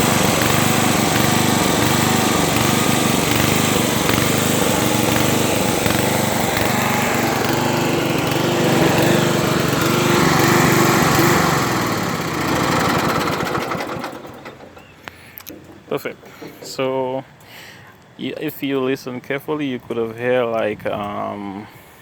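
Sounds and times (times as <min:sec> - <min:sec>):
lawn tractor engine running: 0:00.0 - 0:16.4.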